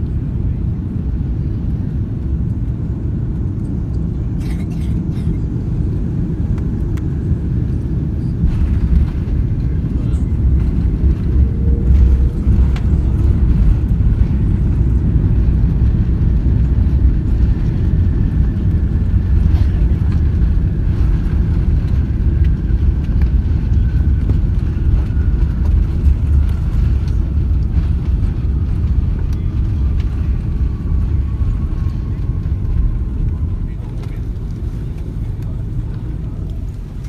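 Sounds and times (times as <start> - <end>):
airplane cabin rumble: 0.0 - 37.0
faint falling whine: 6.4 - 15.6.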